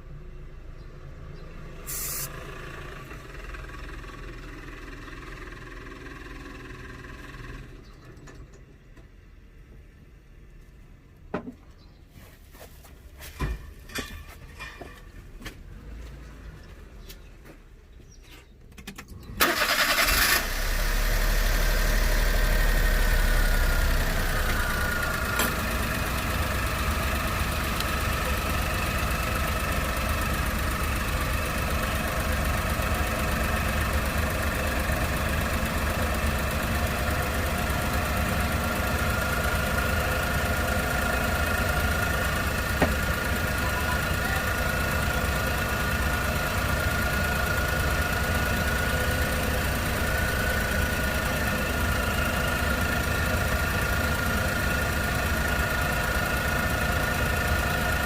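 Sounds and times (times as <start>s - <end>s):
car engine starting and idling: 0.0s - 11.3s, 13.8s - 58.0s.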